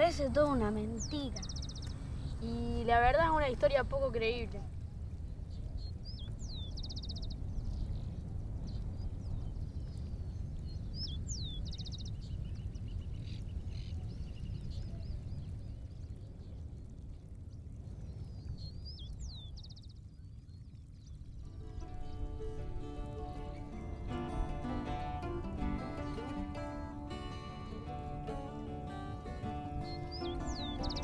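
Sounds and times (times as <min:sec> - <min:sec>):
faint bird chirps: 0:00.1 - 0:03.0, 0:29.2 - 0:31.0
songbird whistle and trill: 0:10.9 - 0:13.2, 0:21.5 - 0:31.0.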